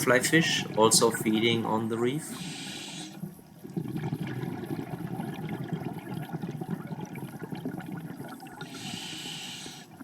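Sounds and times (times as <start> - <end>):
faint crackling ticks in water: 0.0 - 10.0
scuba bubbles gurgling: 0.0 - 10.0.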